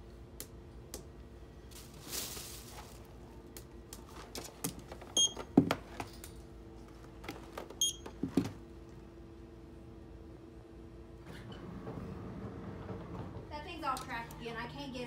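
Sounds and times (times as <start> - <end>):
steady low hum: 0.0 - 15.0
barcode scanner beeping: 5.2 - 5.4, 7.8 - 8.1.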